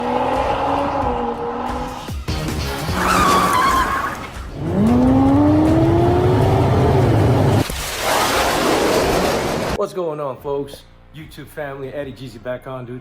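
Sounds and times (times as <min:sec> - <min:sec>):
music: 0:00.0 - 0:07.6, 0:09.8 - 0:13.0
tyres squealing: 0:02.8 - 0:04.5
car engine revving: 0:04.3 - 0:07.6.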